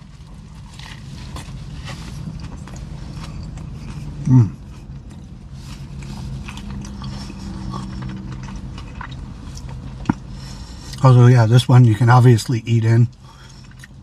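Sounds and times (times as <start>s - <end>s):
man chewing: 0.0s - 11.0s, 13.1s - 14.0s
steady low hum: 0.0s - 14.0s
man humming mmm: 4.1s - 4.7s.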